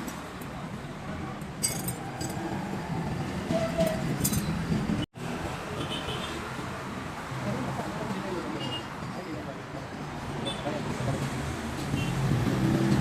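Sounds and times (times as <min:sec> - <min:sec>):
low rumble of traffic: 0:00.0 - 0:13.0
metallic clinks: 0:01.6 - 0:02.4.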